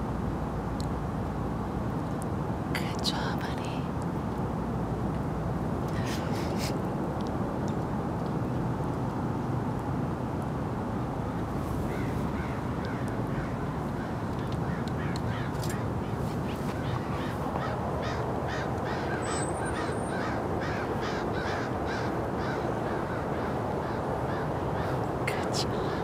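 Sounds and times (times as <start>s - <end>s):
low background rush: 0.0s - 26.0s
bird calling rapidly: 11.9s - 25.0s.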